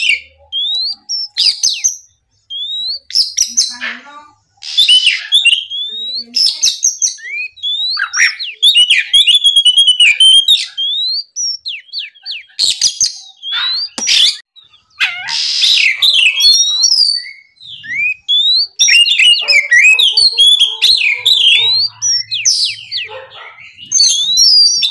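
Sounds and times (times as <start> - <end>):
bird singing whistled phrases: 0.0 - 3.8, 4.6 - 24.9
harsh rasping bird notes: 17.6 - 24.9.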